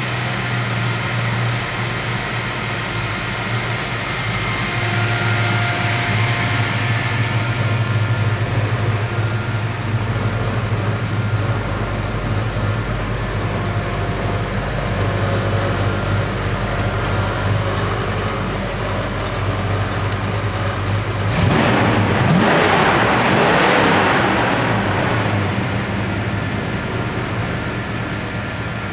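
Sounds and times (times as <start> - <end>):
car engine idling and revving: 0.0 - 28.9.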